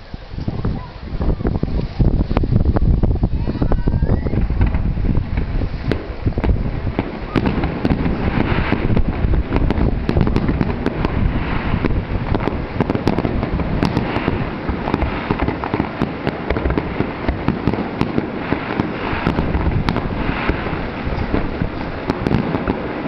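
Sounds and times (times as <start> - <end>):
fireworks crackling: 0.0 - 23.0
low rumble: 1.5 - 15.6, 18.9 - 22.3
firework shells banging: 4.4 - 23.0.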